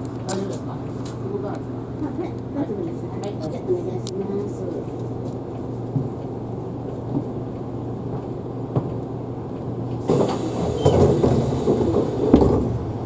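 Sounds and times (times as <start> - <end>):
bus engine hum: 0.0 - 13.0
air hiss: 10.1 - 12.8
knocks and rattles: 10.1 - 13.0.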